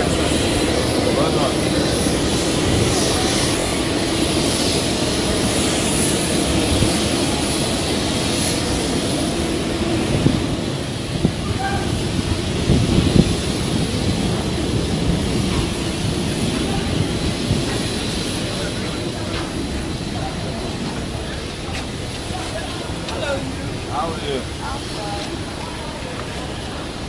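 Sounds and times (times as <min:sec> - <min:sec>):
airliner engines running: 0:00.0 - 0:27.0.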